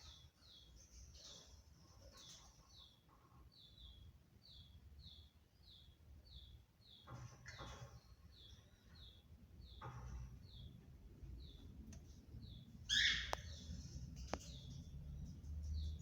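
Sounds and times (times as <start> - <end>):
faint bird chirping: 0.0 - 16.0
harsh bird calling: 12.9 - 13.7.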